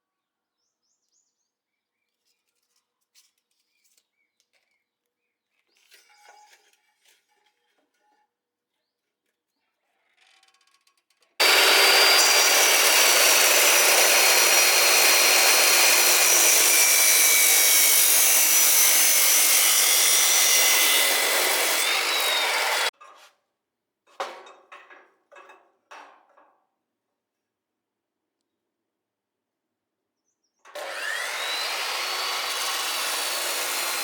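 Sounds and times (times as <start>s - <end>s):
power tool rasping: 11.4s - 22.9s, 30.8s - 34.0s.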